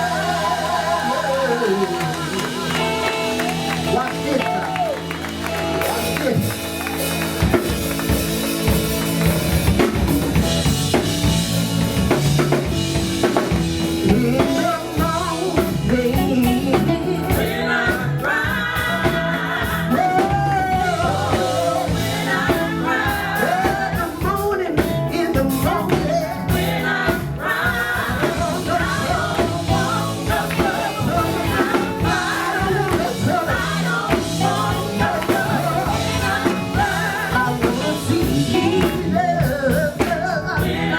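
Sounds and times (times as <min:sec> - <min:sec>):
person singing: 0:00.0 - 0:05.0, 0:13.8 - 0:40.9
drum kit: 0:00.0 - 0:40.9
live church band music: 0:00.0 - 0:40.9.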